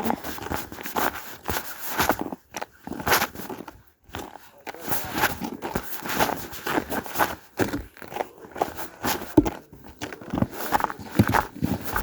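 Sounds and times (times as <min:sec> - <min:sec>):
footsteps crunching on trail: 0:00.0 - 0:12.0.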